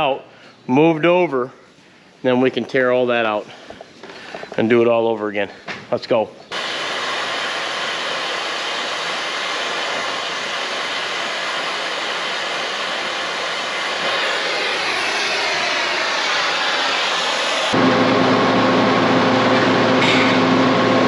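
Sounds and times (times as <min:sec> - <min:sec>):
machine engine revving: 0:12.8 - 0:21.0.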